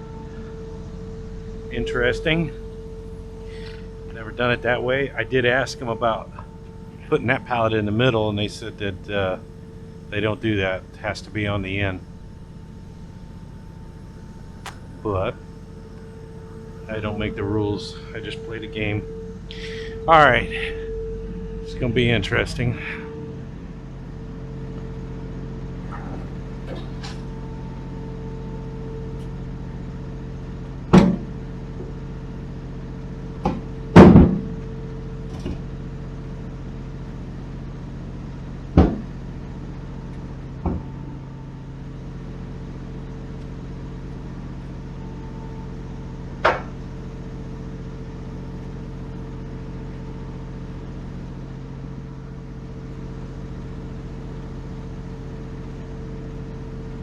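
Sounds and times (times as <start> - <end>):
truck diesel engine idling: 0.0 - 34.0.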